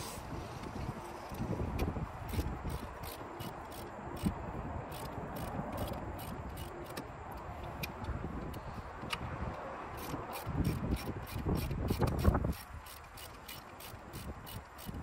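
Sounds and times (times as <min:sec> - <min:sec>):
hand tools clicking and scraping: 0:00.0 - 0:15.0
wind rumbling on microphone: 0:00.0 - 0:15.0.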